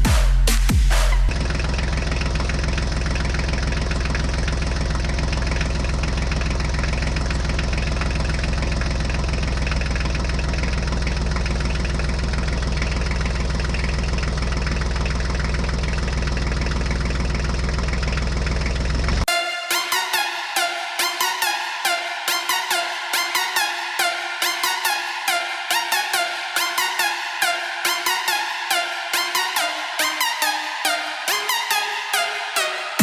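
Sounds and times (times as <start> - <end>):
engine idling with fast knock: 0.0 - 19.3.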